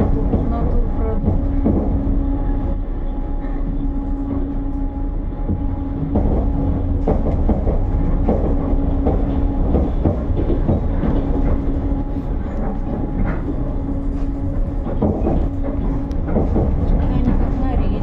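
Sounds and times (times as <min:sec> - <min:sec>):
clacks at rail joints: 0:00.0 - 0:18.0
constant train hum: 0:00.0 - 0:18.0
train wheels rumbling on rails: 0:00.0 - 0:18.0.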